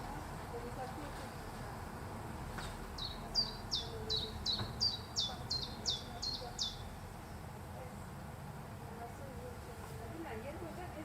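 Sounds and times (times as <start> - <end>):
songbird singing high notes: 3.0 - 6.9.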